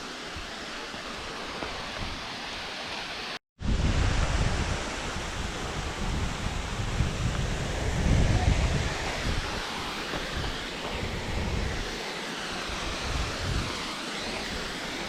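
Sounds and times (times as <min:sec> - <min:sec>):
waterfall rushing: 0:00.0 - 0:15.0
wind buffeting microphone: 0:03.6 - 0:11.9, 0:12.7 - 0:13.9.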